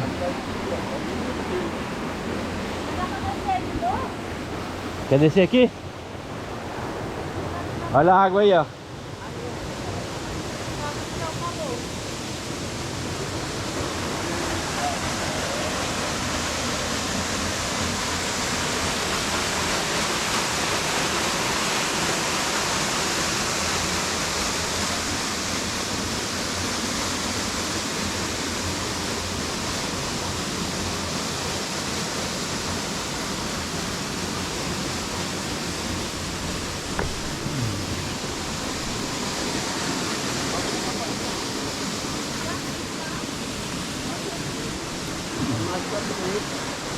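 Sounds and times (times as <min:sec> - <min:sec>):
waterfall rushing: 0:00.0 - 0:46.9
light knock: 0:36.0 - 0:38.1.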